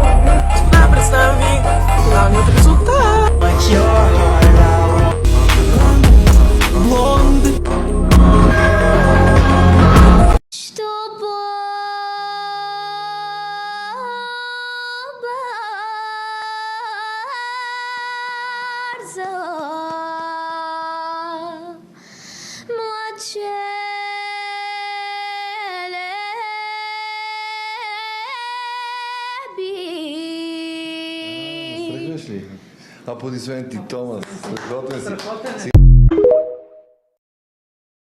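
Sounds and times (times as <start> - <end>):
singer taking a breath: 21.9 - 22.7, 32.5 - 33.1.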